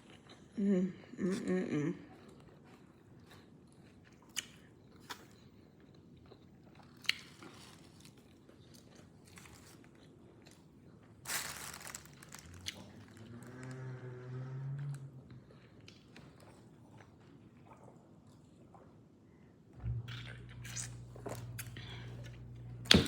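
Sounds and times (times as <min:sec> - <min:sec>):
chewing and biting food: 0:02.2 - 0:13.9.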